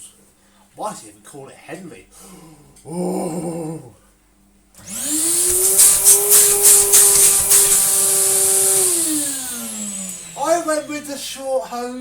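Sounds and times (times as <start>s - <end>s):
vacuum cleaner running: 4.8s - 12.0s.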